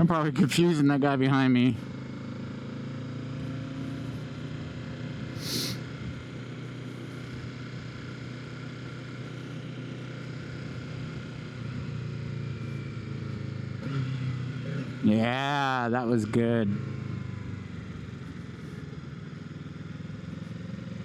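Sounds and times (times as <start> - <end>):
motorcycle engine running: 1.3 - 21.0
short hiss: 5.4 - 5.8.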